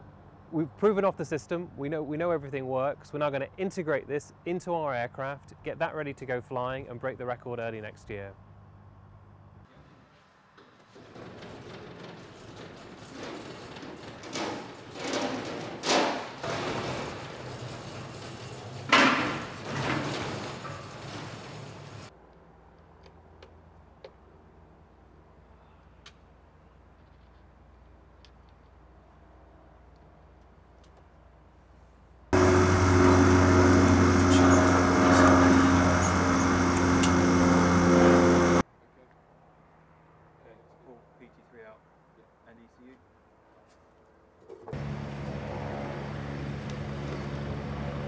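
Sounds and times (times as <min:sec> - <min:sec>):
electric propeller rushing air: 0:32.4 - 0:38.6
low steady hum: 0:32.4 - 0:38.6.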